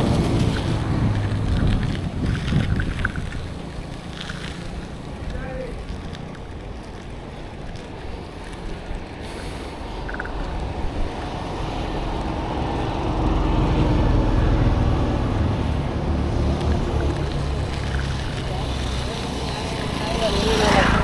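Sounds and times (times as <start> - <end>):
heavy vehicle engine passing by: 0.0 - 4.6, 9.5 - 21.0
wind on microphone: 0.0 - 6.7
road rumble: 0.0 - 21.0.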